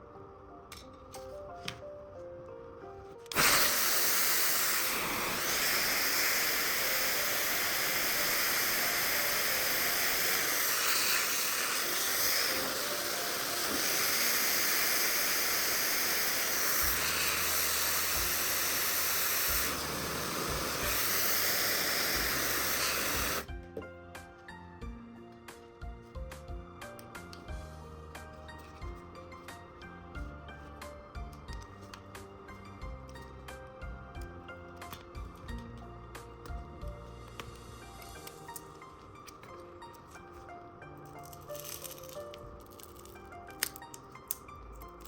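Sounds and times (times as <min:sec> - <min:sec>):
loud steady hiss: 0:03.3 - 0:23.5.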